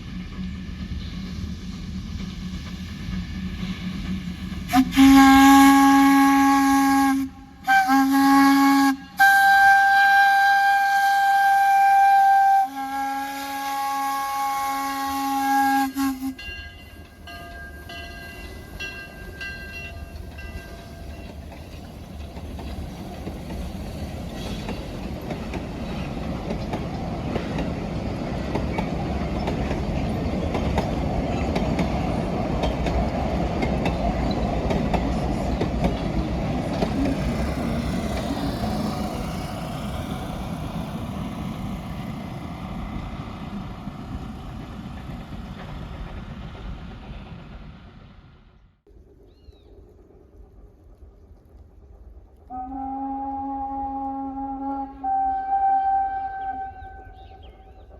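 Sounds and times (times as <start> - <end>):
train running noise: 0.0 - 57.9
steam locomotive whistle blasts: 4.7 - 16.7, 52.5 - 57.8.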